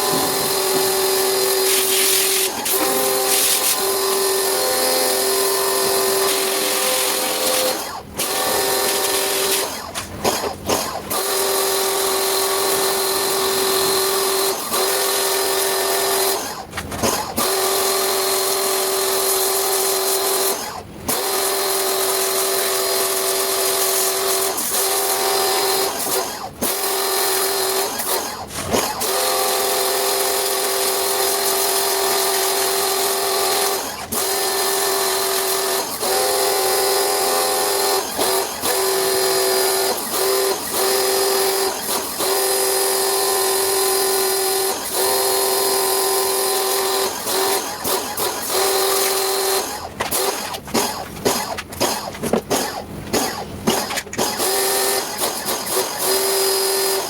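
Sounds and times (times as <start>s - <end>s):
electric motor humming: 0.0s - 9.8s.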